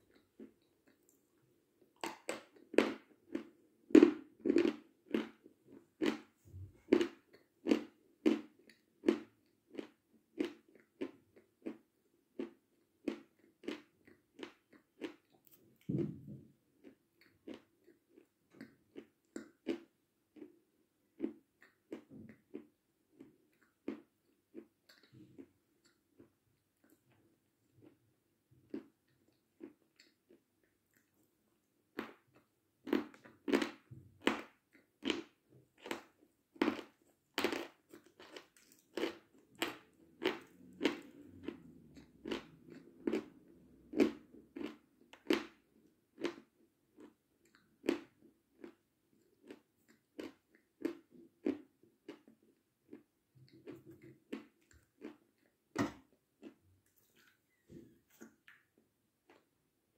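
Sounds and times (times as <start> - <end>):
person crunching and chewing: 1.9 - 15.9, 32.0 - 55.5.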